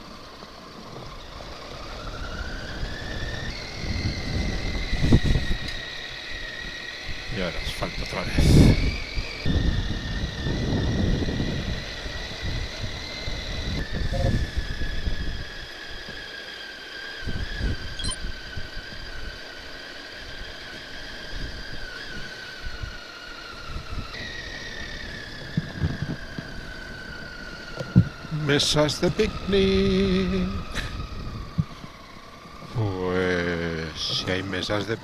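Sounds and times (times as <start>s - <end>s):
wind rumble on microphone: 0.7s - 16.2s, 17.2s - 19.5s, 20.2s - 33.1s
motorcycle engine running: 23.9s - 35.0s.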